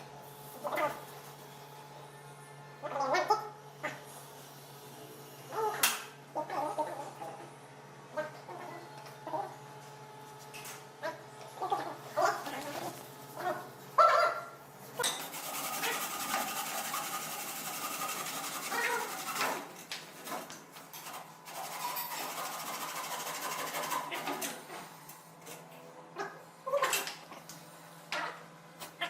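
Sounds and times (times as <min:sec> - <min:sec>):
small power tool motor running: 0:15.3 - 0:19.6.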